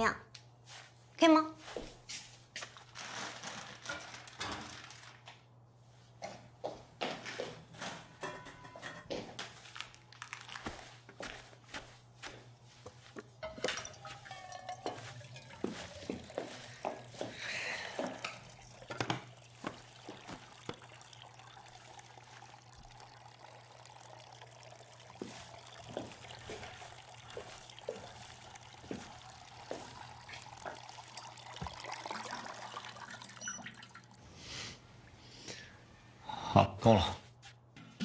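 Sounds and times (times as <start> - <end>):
utensils clinking: 7.8 - 9.6, 13.4 - 33.8
water pouring into pot: 13.4 - 34.3.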